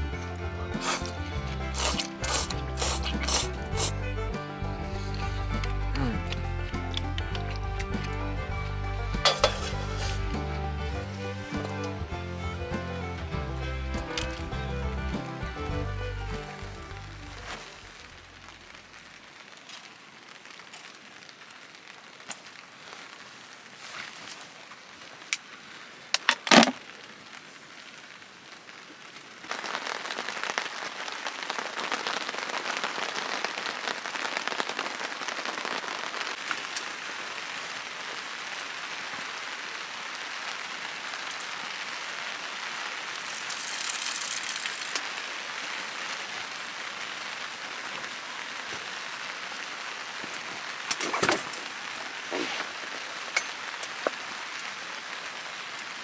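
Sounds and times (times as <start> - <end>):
rain hissing: 0.0 - 56.0
loud rattle: 43.1 - 45.0.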